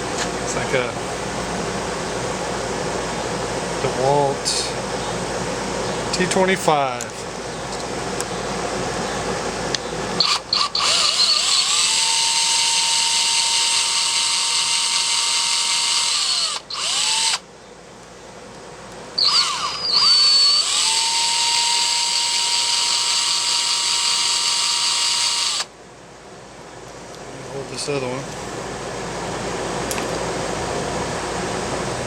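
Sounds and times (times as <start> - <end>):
power drill motor whining: 10.2 - 17.4, 19.2 - 25.7.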